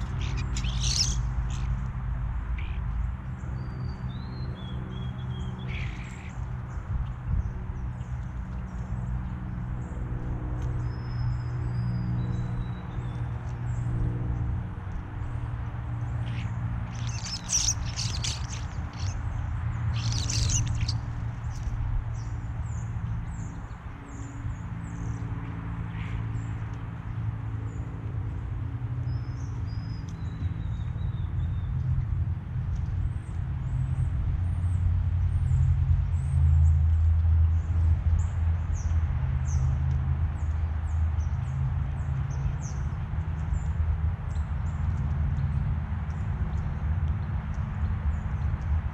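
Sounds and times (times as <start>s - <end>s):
harsh bird calls: 0.0s - 1.8s, 16.2s - 21.8s
songbirds chirping: 0.0s - 48.9s
steady low rumble: 13.7s - 24.5s.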